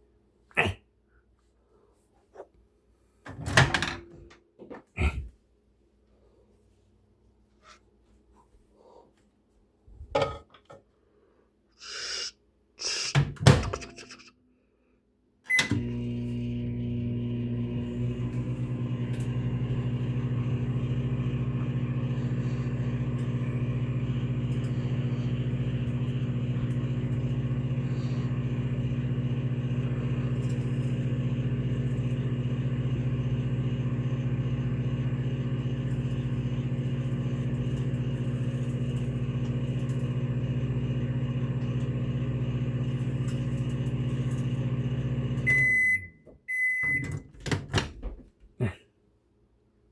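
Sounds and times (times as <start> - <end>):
microwave oven humming: 15.5 - 47.3.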